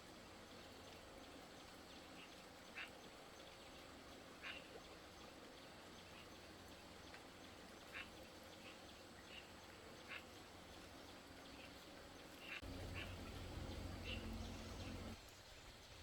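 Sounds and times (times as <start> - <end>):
faint animal calls: 11.6 - 15.2
steady low hum: 12.6 - 15.2.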